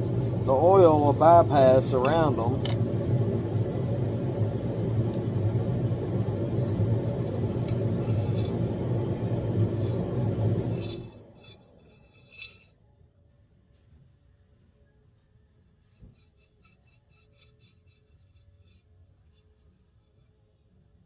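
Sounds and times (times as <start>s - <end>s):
engine low rumble: 0.0s - 11.4s.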